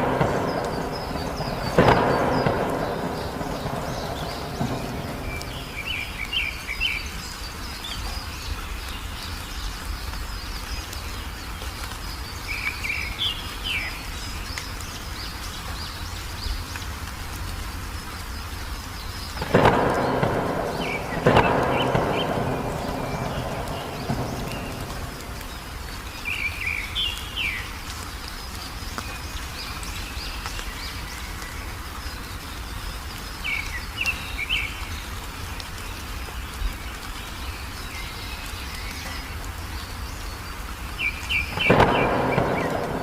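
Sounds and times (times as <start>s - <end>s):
thunder cracking and rumbling: 0.0s - 7.2s, 19.2s - 27.6s, 41.2s - 43.0s
songbird chirping: 0.0s - 43.0s
steady rain: 0.0s - 43.0s.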